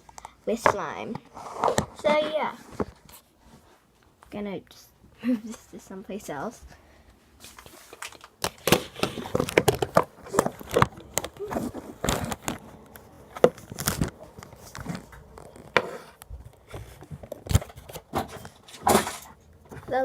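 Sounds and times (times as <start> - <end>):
slime crackling and crinkling: 7.5 - 18.6.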